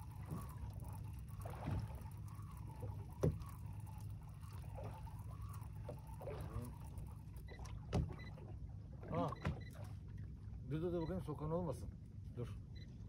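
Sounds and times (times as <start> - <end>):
water lapping against boat: 0.0 - 13.0
knocks on boat: 7.9 - 8.3, 9.3 - 9.7.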